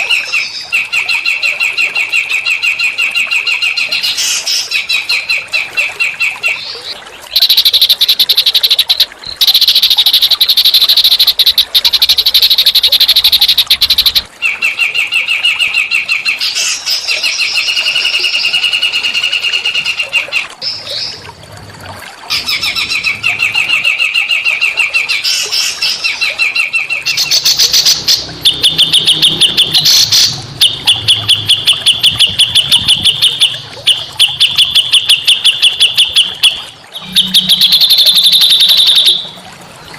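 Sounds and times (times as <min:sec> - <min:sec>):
songbird singing fast trill: 0:07.4 - 0:14.3.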